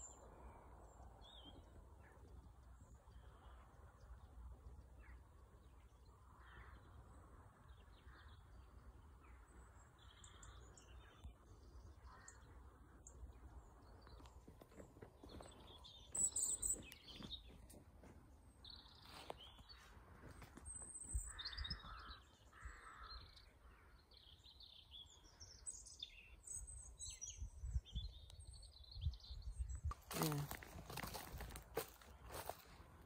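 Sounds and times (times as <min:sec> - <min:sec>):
birds chirping and singing: 0:07.7 - 0:33.0
lower bird calls: 0:18.7 - 0:32.8.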